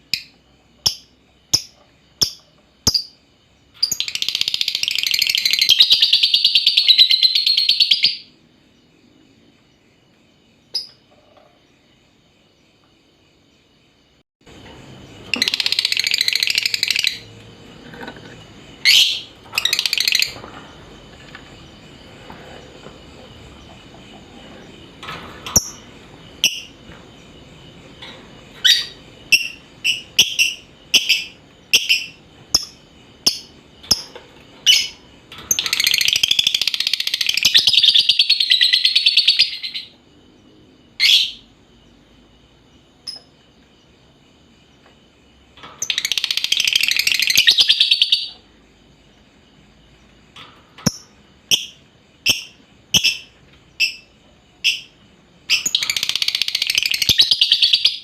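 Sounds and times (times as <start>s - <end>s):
birds chirping: 14.4s - 40.0s, 42.9s - 58.0s
shrill bird chattering: 15.3s - 17.3s.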